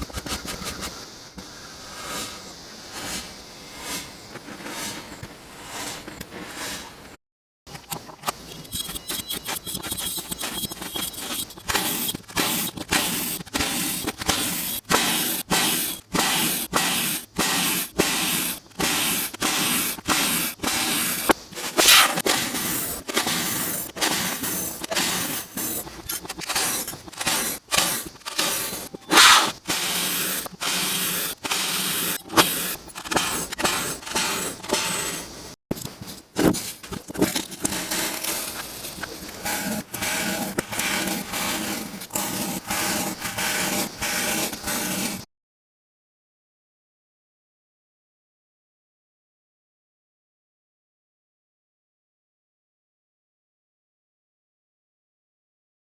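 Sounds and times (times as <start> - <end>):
crunchy strokes in kinetic sand: 0.0 - 7.1, 8.4 - 35.6, 36.3 - 45.3.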